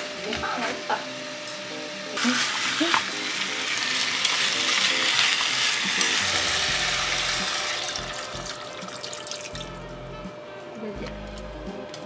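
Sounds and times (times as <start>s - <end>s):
food sizzling in a pot: 0.0s - 12.0s
water pouring from bottle: 3.9s - 9.8s.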